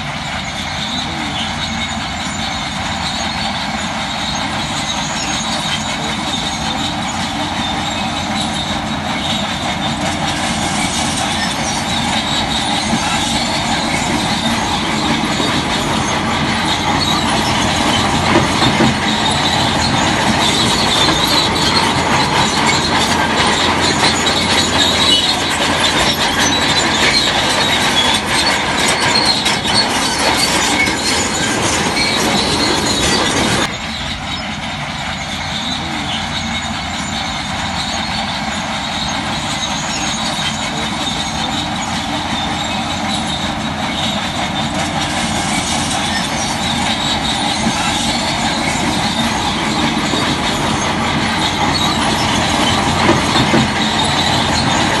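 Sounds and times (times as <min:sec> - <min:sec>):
crawler bulldozer with clanking tracks: 0:00.0 - 0:55.0.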